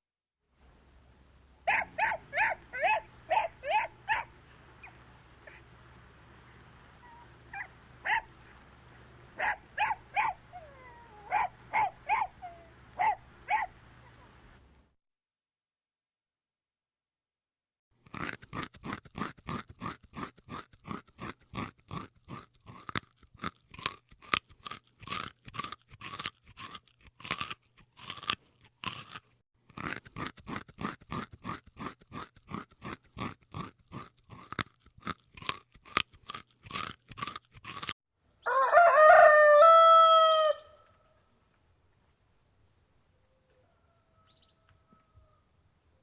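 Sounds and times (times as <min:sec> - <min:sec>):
rapid regular crunching: 0:18.0 - 0:38.0
rooster crowing: 0:38.4 - 0:41.0, 0:43.2 - 0:45.6.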